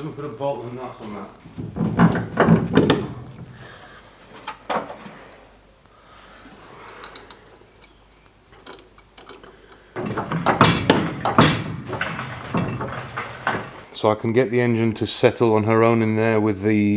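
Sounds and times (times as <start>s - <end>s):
bolt and nut clicks and knocks: 1.4s - 3.7s, 8.6s - 13.9s.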